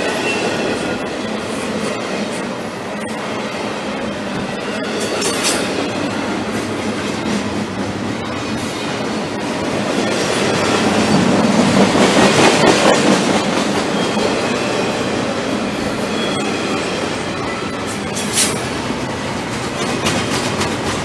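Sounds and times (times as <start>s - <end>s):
steel wheels clattering on rails: 4.3s - 21.0s.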